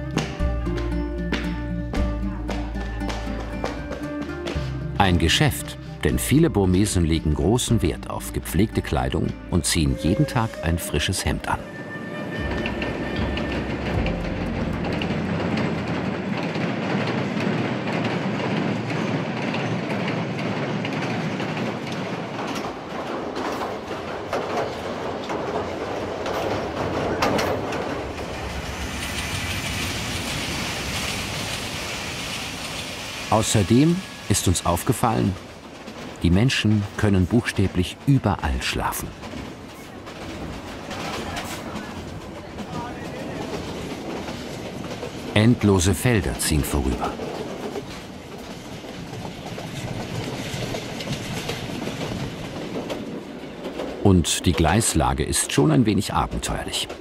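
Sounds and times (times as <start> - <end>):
train rushing past: 0.0 - 57.0
train wheels clacking over joints: 11.4 - 57.0.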